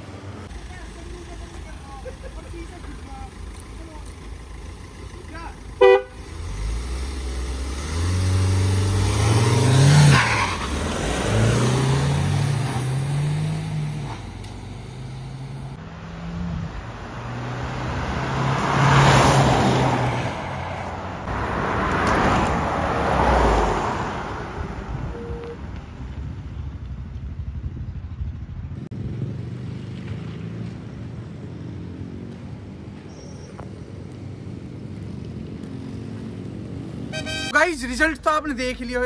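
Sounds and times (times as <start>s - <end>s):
cars passing at speed: 5.8s - 25.8s, 28.8s - 37.6s
cars accelerating hard: 6.0s - 25.2s.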